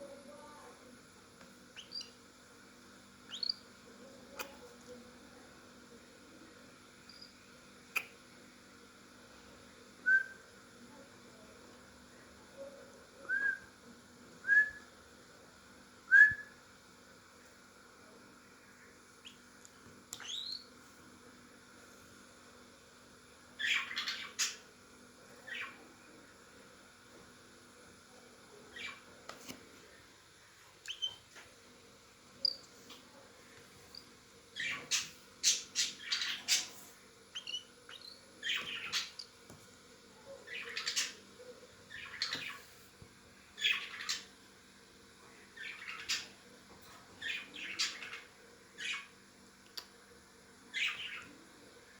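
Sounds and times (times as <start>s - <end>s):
thin high chirps: 3.3s - 3.7s, 7.0s - 7.4s, 30.9s - 31.2s, 37.3s - 39.3s.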